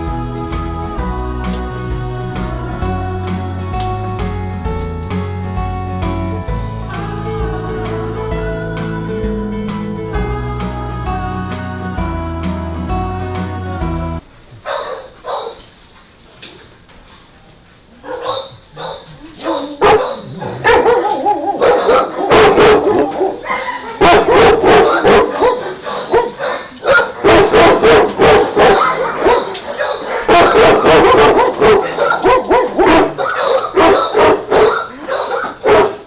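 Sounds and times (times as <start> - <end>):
dogs barking: 14.6 - 15.7, 18.0 - 36.0.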